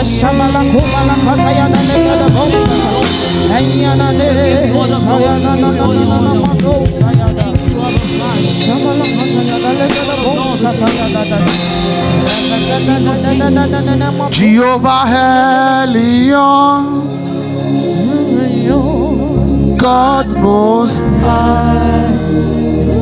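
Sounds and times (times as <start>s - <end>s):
singing: 0.0s - 17.2s
worship band playing: 0.0s - 23.0s
drum hits: 0.7s - 4.5s.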